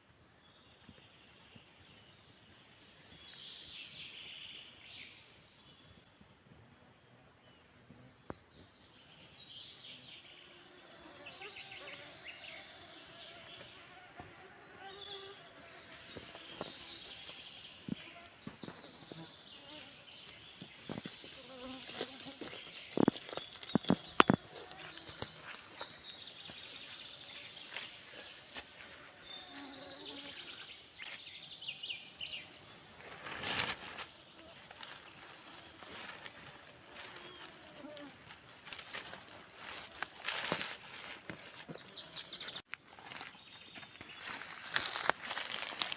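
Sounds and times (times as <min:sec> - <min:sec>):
faint birdsong chirping: 0:00.0 - 0:45.9
insects buzzing: 0:10.2 - 0:43.2.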